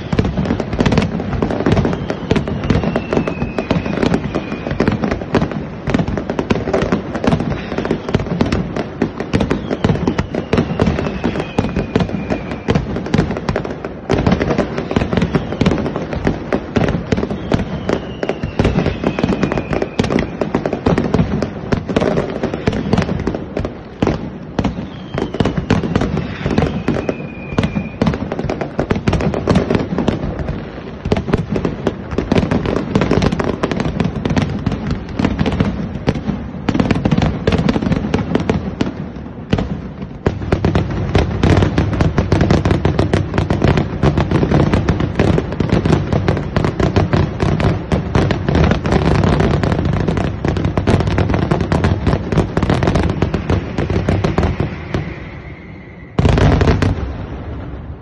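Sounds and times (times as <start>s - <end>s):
fireworks bangs and crackles: 0.0s - 58.0s
faint falling whistle: 1.7s - 5.0s, 9.5s - 12.8s, 15.3s - 15.8s, 17.1s - 20.4s, 24.7s - 28.2s, 54.2s - 56.9s.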